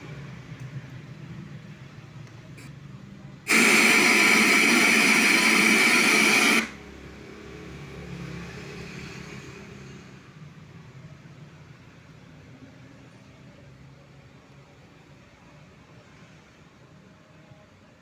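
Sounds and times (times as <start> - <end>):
loud static hiss: 3.4 - 7.0.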